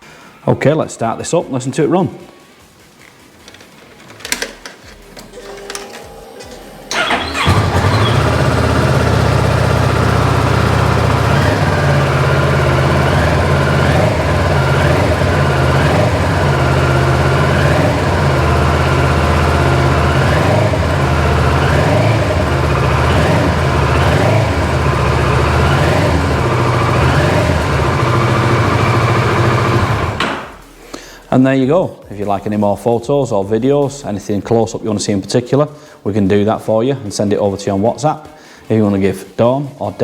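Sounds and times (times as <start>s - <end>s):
motorcycle engine idling: 6.9s - 30.5s.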